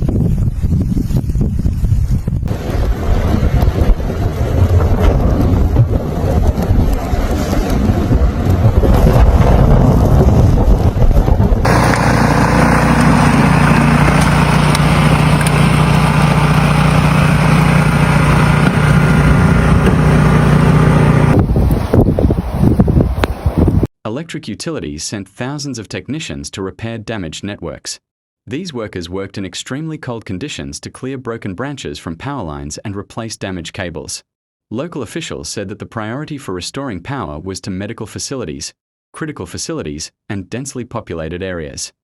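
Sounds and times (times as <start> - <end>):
wind buffeting microphone: 0.0 - 11.9, 15.2 - 23.9
vehicle engine running: 11.6 - 21.9.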